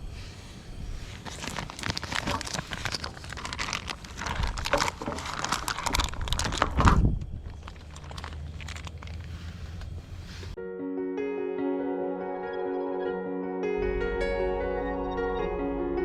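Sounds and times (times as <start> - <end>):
crinkling and rustling: 0.0 - 10.6.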